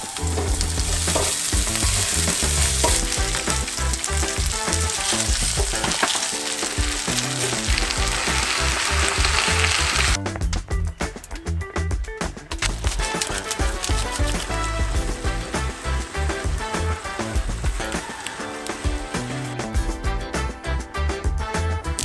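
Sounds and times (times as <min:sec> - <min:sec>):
loud steady hiss: 0:00.0 - 0:10.2, 0:12.7 - 0:19.7
background music with beat: 0:00.0 - 0:22.0.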